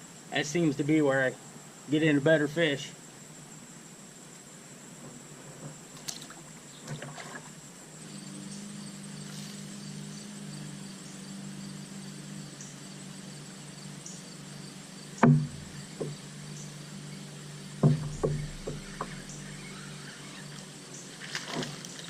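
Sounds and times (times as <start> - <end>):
steady low hum: 7.4 - 22.0
sharp knocks on a kayak: 15.2 - 16.2, 17.8 - 19.7.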